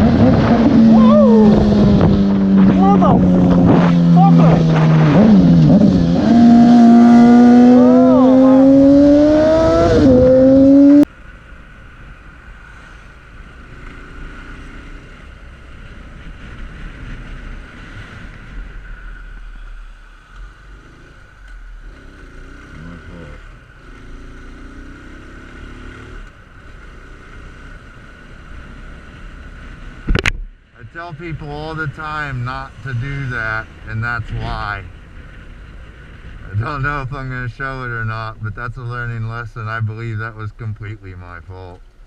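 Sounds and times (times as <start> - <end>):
wind noise: 0.0 - 11.1.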